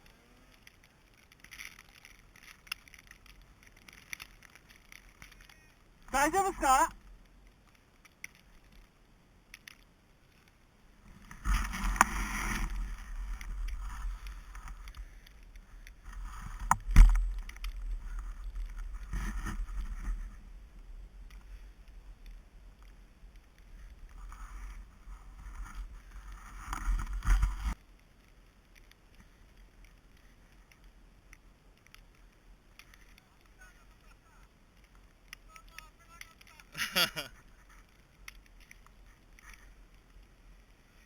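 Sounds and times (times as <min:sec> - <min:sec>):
sliding and scraping over snow: 0:00.0 - 0:41.0
wind rumble on microphone: 0:11.0 - 0:27.8.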